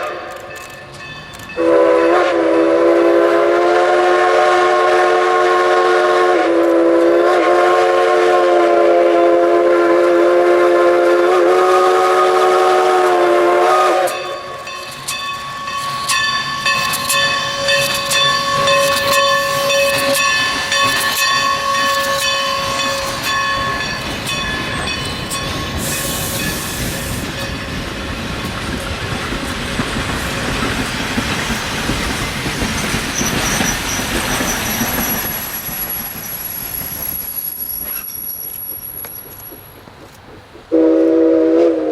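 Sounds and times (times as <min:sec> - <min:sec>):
steam whistle blast: 0:01.6 - 0:14.5, 0:17.3 - 0:23.4, 0:25.7 - 0:27.4, 0:40.7 - 0:41.9
metallic train wheel squeal: 0:14.0 - 0:28.0, 0:30.2 - 0:40.0.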